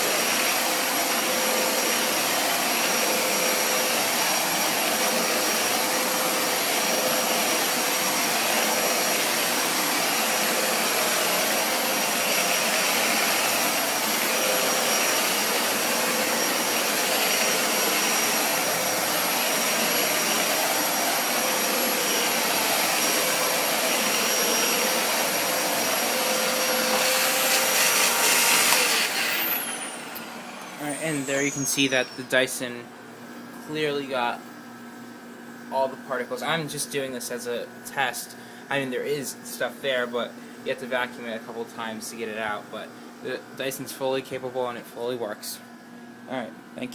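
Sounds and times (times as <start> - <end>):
vacuum cleaner running: 0.0 - 46.5
motor winding down: 0.3 - 32.3.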